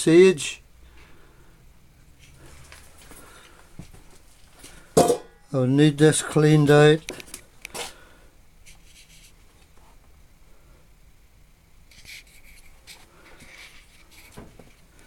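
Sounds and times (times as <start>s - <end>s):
faint scraping and rubbing: 8.6s - 10.0s, 11.9s - 14.9s.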